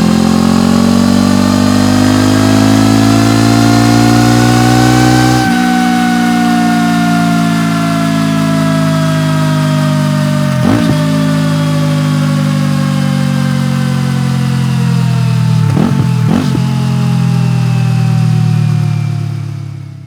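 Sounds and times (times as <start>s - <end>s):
motorcycle engine idling: 5.7s - 20.0s.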